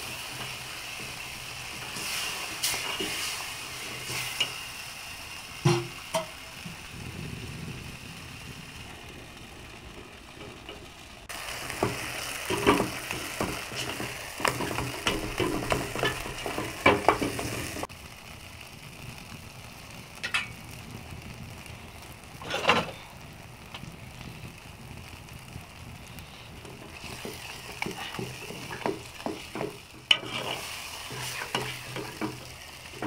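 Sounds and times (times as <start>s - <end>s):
food frying with sizzle: 0.0s - 33.0s
spoon scraping pot: 26.9s - 32.4s.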